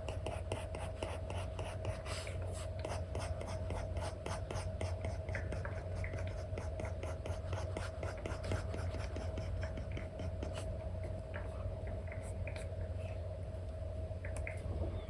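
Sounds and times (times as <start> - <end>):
steady low hum: 0.0 - 15.0
stylus tapping and scratching: 2.8 - 11.5.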